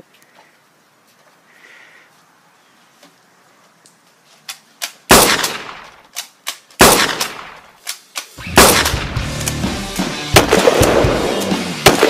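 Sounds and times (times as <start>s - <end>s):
sharp clicks: 3.8s - 12.0s
gunshot bangs: 5.1s - 5.9s, 6.8s - 7.6s, 8.4s - 9.2s, 10.4s - 12.0s.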